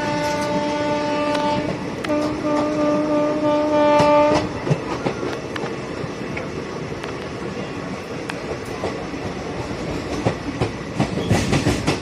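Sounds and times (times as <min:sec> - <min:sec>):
train horn blasts: 0:00.0 - 0:04.5
train wheels clacking on rails: 0:00.0 - 0:12.0.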